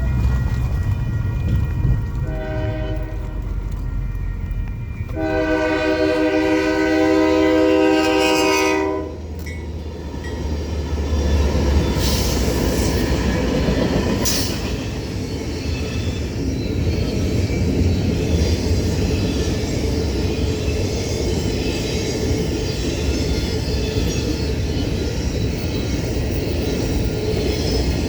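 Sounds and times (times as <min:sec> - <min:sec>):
freight train rumbling wheels: 0:00.0 - 0:28.0
locomotive air horn chord: 0:02.2 - 0:03.5, 0:05.1 - 0:09.3.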